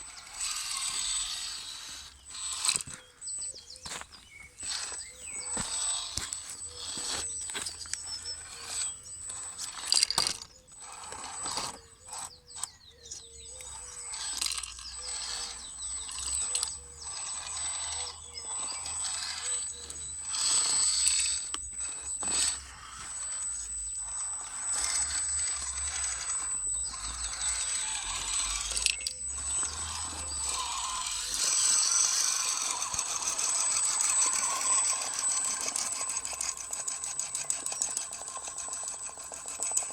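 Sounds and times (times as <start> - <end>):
electric drivetrain whine: 0.0 - 39.9.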